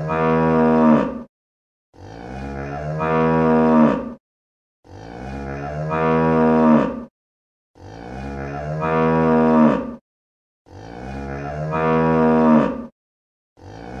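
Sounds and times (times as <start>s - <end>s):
cow mooing: 0.0s - 1.3s, 2.0s - 4.2s, 4.9s - 7.1s, 7.8s - 10.0s, 10.7s - 12.9s, 13.6s - 14.0s.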